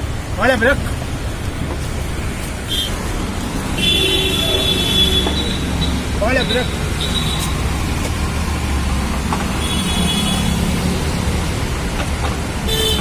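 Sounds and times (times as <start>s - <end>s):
traffic engine rumble: 0.0s - 13.0s
high car horn toot: 2.7s - 3.0s, 3.8s - 7.6s, 9.6s - 10.6s, 12.7s - 13.0s.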